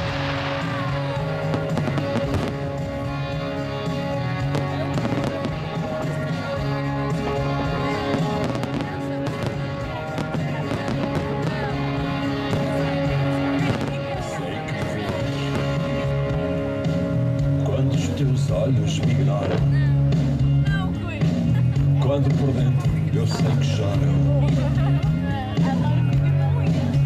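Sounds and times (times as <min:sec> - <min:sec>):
fireworks bursting and crackling: 0:00.0 - 0:20.4
music with held notes: 0:00.0 - 0:27.0.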